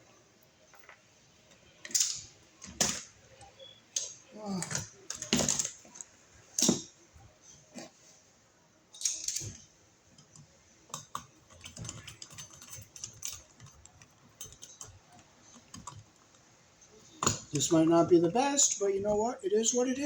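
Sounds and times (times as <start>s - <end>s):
small metal parts clicking: 1.8s - 3.1s, 8.9s - 16.4s.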